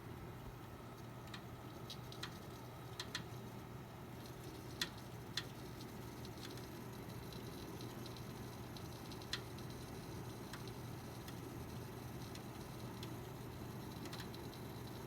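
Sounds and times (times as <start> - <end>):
steady low hum: 0.0 - 15.0
computer crackling: 1.0 - 3.3, 13.8 - 15.0.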